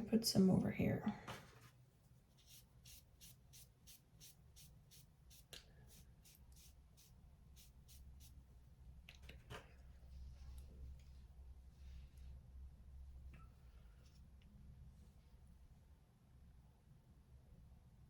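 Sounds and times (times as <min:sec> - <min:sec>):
faint room hum: 0:00.0 - 0:18.0.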